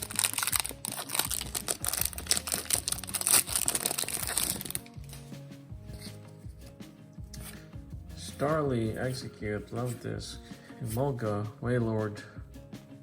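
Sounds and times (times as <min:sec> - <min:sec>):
foil wrapper crinkling and tearing: 0:00.0 - 0:05.2
background music: 0:00.0 - 0:13.0.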